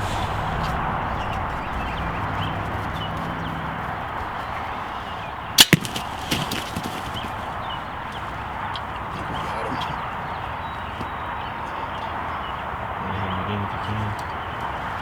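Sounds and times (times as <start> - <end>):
bowstring and arrow crack: 5.6 - 6.9
bird flopping thumps: 5.6 - 10.0.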